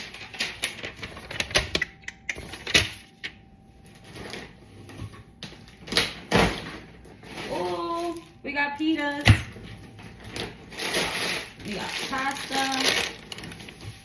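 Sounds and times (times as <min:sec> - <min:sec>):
packaging clicks and scrapes: 0:10.2 - 0:14.0.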